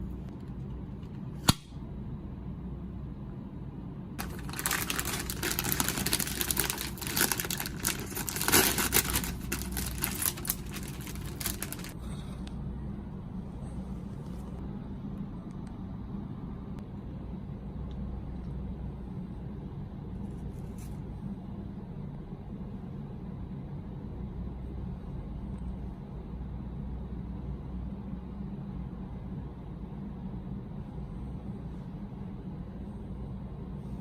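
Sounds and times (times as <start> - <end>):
low steady hum: 0.0 - 34.0
plastic packaging crinkling: 4.2 - 12.0.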